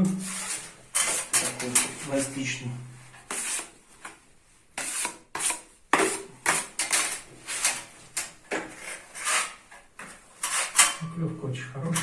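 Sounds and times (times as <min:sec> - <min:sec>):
putty knives scraping filler: 0:00.3 - 0:02.0, 0:03.2 - 0:04.2, 0:04.8 - 0:09.8, 0:10.4 - 0:11.0.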